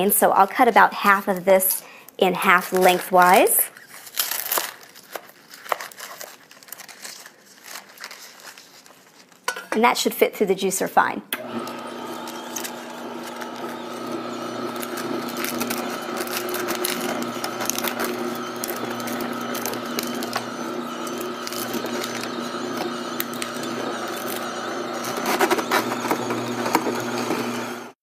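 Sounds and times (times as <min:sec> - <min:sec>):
juicer motor and gear hum: 0:11.3 - 0:28.0
lettuce crackling in gears: 0:11.6 - 0:27.8.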